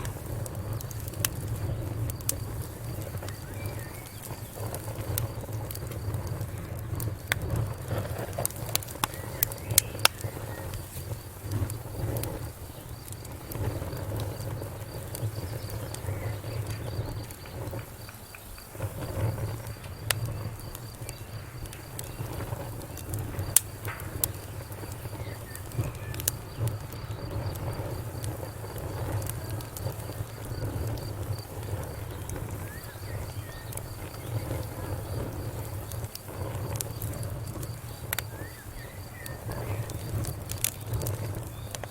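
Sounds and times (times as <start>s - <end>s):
fire crackling in fireplace: 0.0s - 41.9s.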